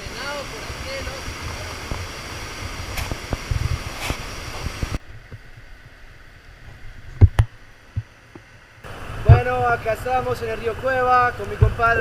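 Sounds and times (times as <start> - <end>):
river water rushing: 0.0 - 12.0
wind on microphone: 0.0 - 12.0.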